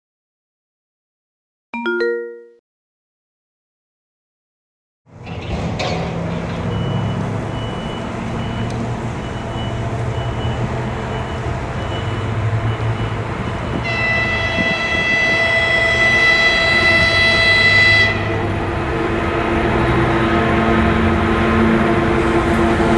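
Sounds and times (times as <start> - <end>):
locomotive engine rumbling: 5.1 - 22.9
locomotive air horn blast: 13.6 - 22.9.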